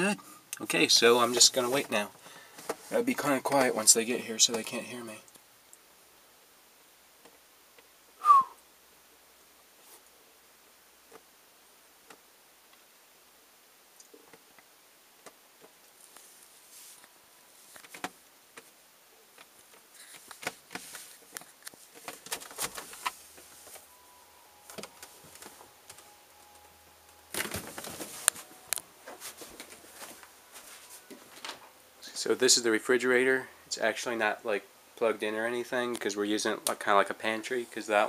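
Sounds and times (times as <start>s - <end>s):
faint clicks and rustles: 13.9s - 23.9s, 24.6s - 31.8s.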